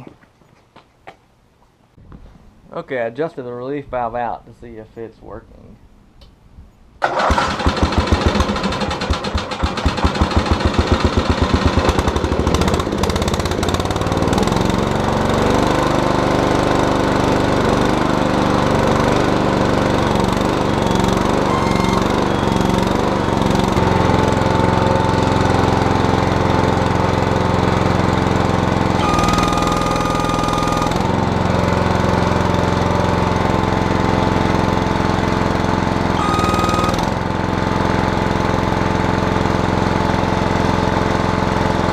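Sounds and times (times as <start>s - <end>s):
backhoe engine running: 7.0s - 41.9s
high hydraulic squeal: 20.8s - 22.8s.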